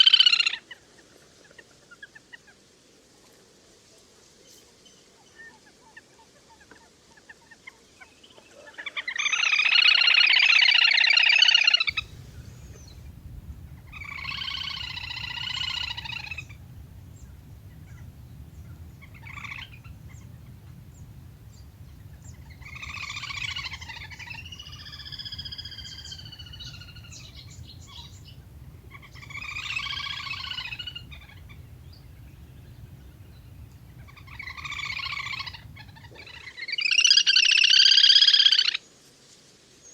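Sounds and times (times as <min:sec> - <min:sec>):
trilling waterbird calls: 0:11.7 - 0:38.7
low steady hum: 0:11.9 - 0:36.4.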